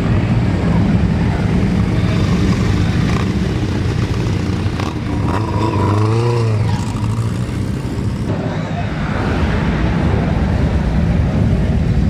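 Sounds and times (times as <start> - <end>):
motorcycle engine running: 0.0 - 8.3.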